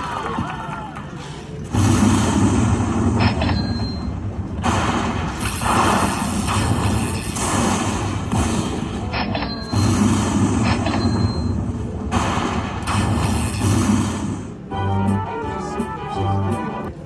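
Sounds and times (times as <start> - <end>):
steady low hum: 1.4 - 17.0
loud rumbling booms: 1.7 - 14.6.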